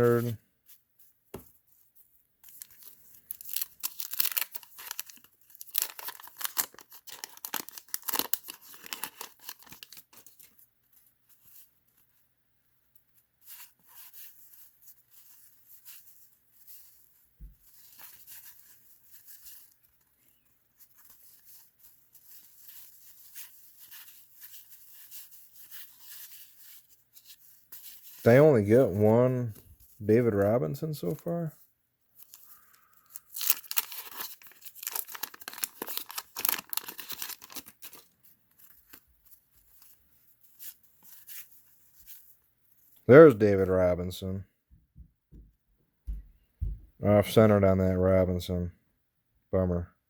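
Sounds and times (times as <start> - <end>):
paper and cards rustling: 0.0 - 12.2, 12.9 - 43.9
wax-paper wrapper tearing: 2.4 - 10.6, 32.2 - 43.0
soft knock: 44.8 - 47.0.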